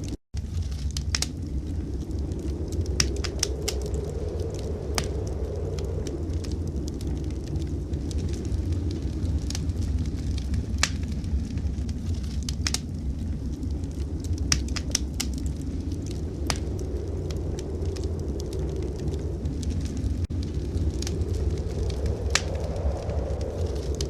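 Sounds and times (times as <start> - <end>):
fire pops: 0.0 - 24.0
low fire rumble: 0.0 - 24.0
wood fire crackling: 0.0 - 24.0.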